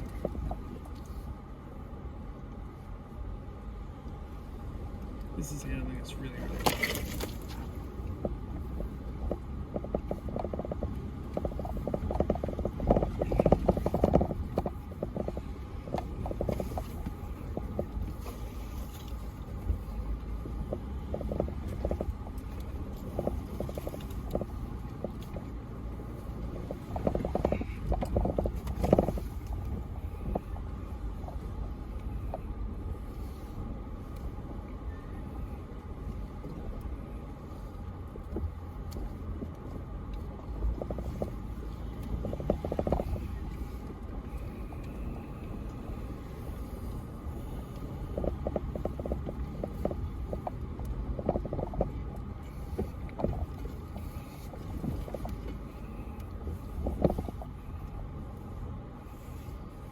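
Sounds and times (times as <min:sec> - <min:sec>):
engine low rumble: 0:00.0 - 0:59.9
rocks knocking and crunching: 0:06.4 - 0:31.6, 0:38.2 - 0:43.6, 0:47.8 - 0:57.6.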